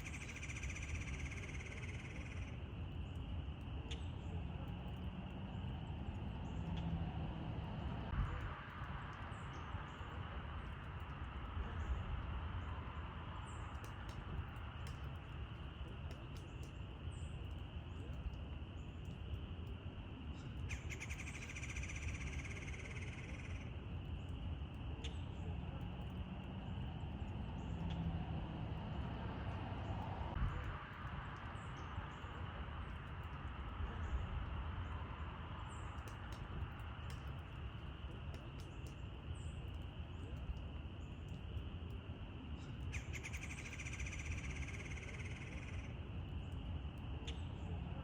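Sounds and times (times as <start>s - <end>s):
low outdoor rumble: 0.0s - 48.0s.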